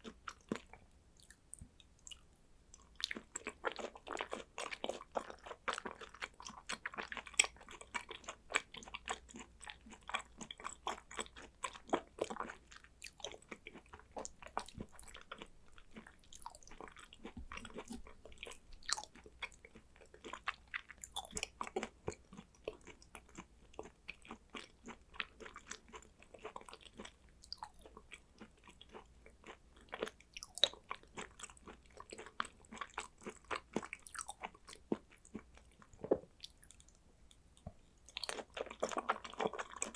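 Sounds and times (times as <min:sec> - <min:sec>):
chewing with mouth clicks: 0:00.0 - 0:39.9.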